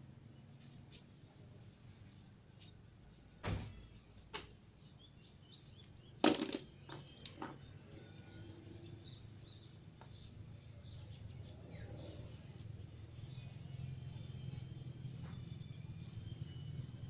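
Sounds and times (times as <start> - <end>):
faint bird chirps: 0.0 - 17.0
parts clicking and knocking: 6.2 - 7.6.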